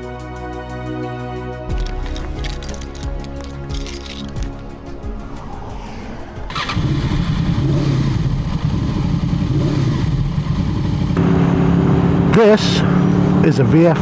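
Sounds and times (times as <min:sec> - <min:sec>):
motorcycle engine starting: 0:06.4 - 0:12.2.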